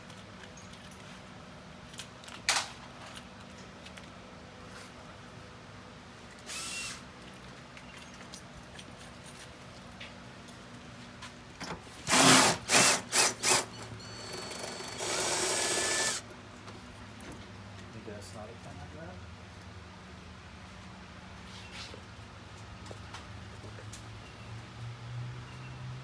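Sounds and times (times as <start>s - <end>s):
cordless power tool motor: 6.4s - 7.1s, 12.0s - 16.3s.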